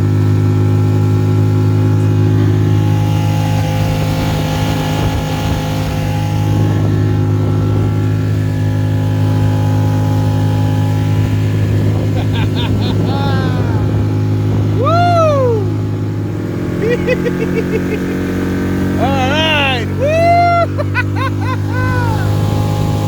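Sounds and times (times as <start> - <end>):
outboard motor at full throttle: 0.0 - 23.0
water and wind rushing: 0.0 - 23.0.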